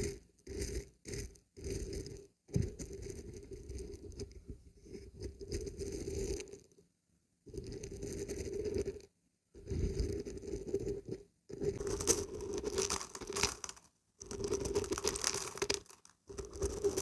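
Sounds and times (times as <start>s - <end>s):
dried beans rattling when shaken: 11.8s - 17.0s.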